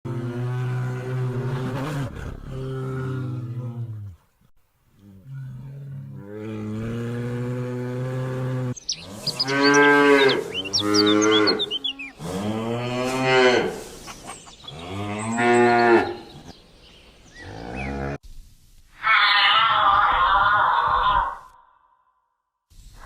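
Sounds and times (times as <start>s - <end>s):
animal lowing: 5.0s - 16.5s, 17.4s - 18.2s.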